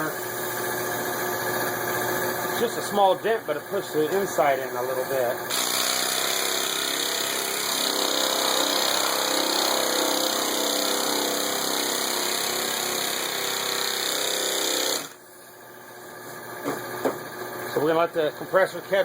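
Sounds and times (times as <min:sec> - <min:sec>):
air-powered sander running: 0:00.0 - 0:15.2.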